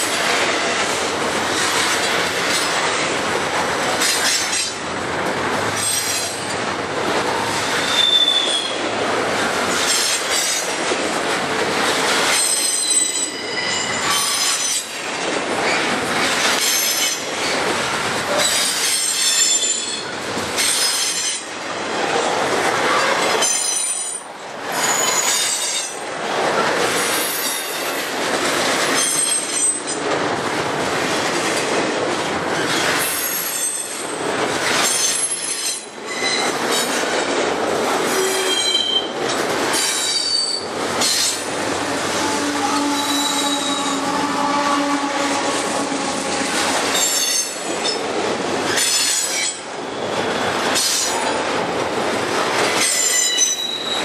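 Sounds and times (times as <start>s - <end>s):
high-pitched wheel squeal: 7.8s - 8.8s, 12.4s - 14.8s, 36.1s - 36.5s, 42.2s - 45.4s, 53.0s - 54.0s.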